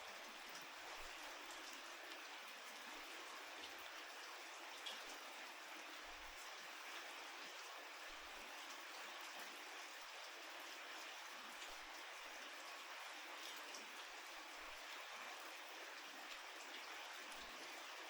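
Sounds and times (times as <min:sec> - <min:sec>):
faint steady rain: 0:00.0 - 0:18.0.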